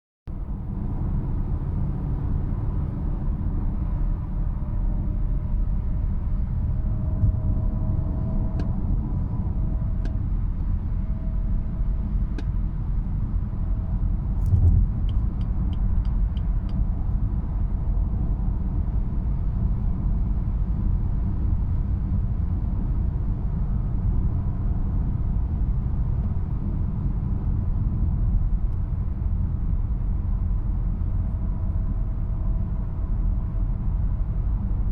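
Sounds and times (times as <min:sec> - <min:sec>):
car road and engine noise: 0:00.3 - 0:34.9.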